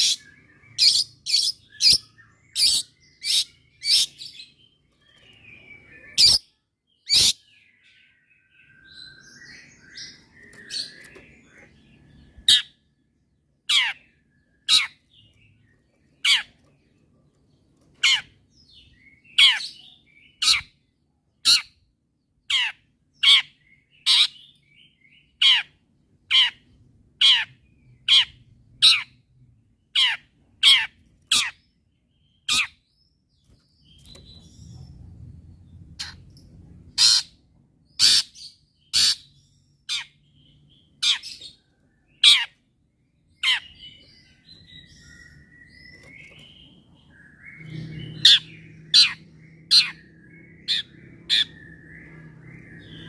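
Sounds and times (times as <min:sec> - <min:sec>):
bird giving sharp calls: 0:37.0 - 0:37.4, 0:38.0 - 0:39.3.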